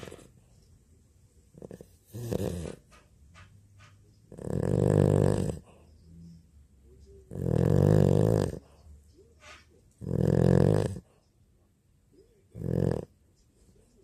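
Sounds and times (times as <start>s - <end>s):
dog snoring: 1.5s - 2.9s, 4.2s - 6.3s, 7.2s - 8.8s, 10.0s - 11.1s, 12.5s - 13.2s.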